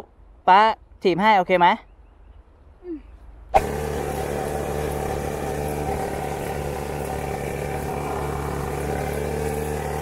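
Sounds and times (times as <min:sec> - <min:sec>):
small motorcycle engine running: 0:03.6 - 0:10.0.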